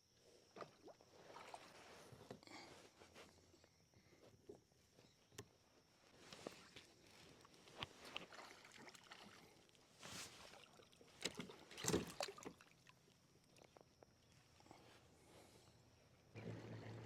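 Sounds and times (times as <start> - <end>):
light water splashes: 8.0 - 13.7.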